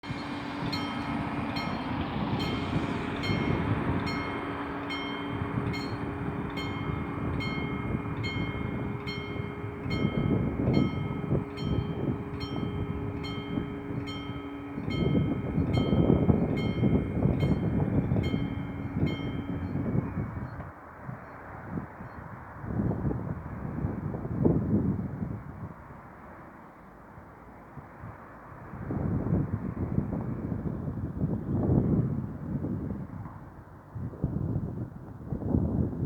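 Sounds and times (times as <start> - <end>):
train rumble: 0.0 - 21.6
level crossing bell ringing: 0.1 - 20.0.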